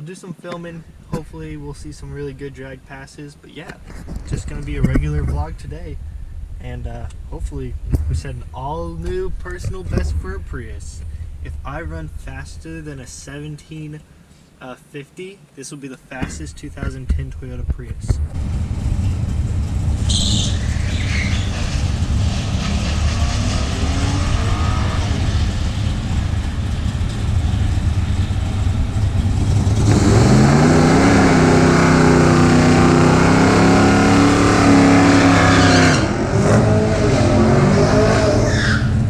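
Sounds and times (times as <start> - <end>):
drag racing car engines: 0.5 - 14.0, 16.2 - 39.0
car engine revving: 17.9 - 39.0.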